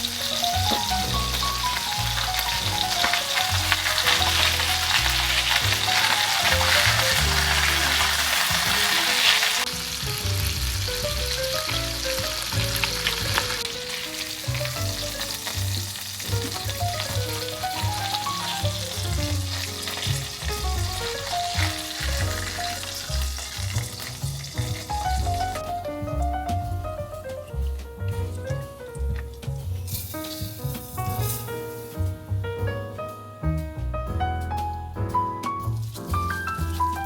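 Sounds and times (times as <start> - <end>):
food sizzling in a pan: 0.0 - 25.7, 29.4 - 32.1
stirring: 0.0 - 25.8.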